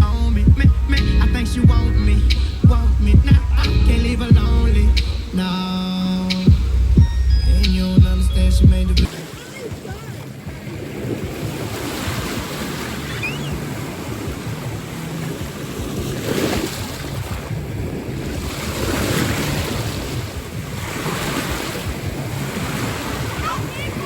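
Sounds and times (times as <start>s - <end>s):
wind buffeting microphone: 0.0s - 24.0s
ocean surf washing on beach: 9.1s - 24.0s.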